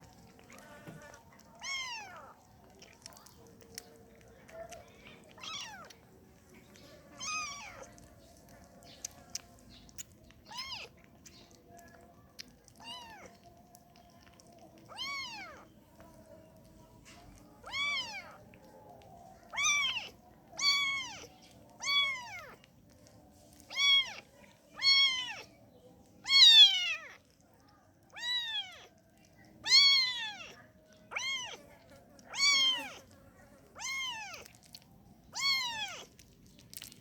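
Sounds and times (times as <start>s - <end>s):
kitten meowing: 1.6s - 2.9s, 5.4s - 6.0s, 7.2s - 7.9s, 10.4s - 10.9s, 12.8s - 13.5s, 14.8s - 15.7s, 17.6s - 18.4s, 19.5s - 22.6s, 23.7s - 24.2s, 24.8s - 25.5s, 26.2s - 27.2s, 28.2s - 29.0s, 29.6s - 31.6s, 32.3s - 33.0s, 33.8s - 34.6s, 35.3s - 36.1s.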